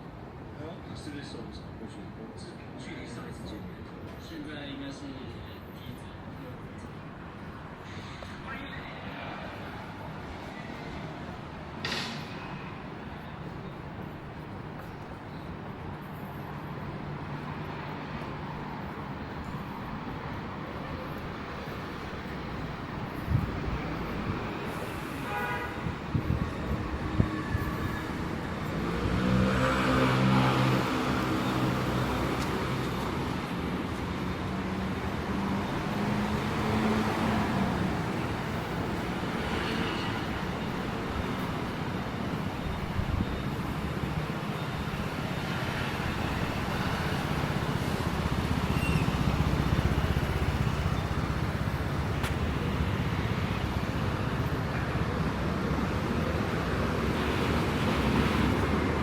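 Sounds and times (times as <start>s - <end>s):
vehicles passing on wet road: 16.2s - 59.0s.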